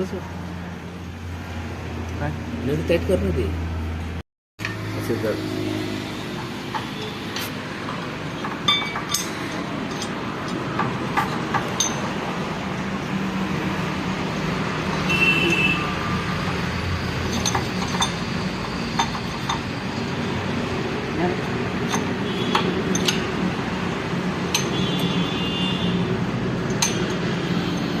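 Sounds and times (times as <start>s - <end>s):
metal tools and parts clinking: 6.3s - 12.4s, 16.2s - 20.4s, 21.5s - 23.5s, 24.4s - 25.4s, 26.5s - 28.0s.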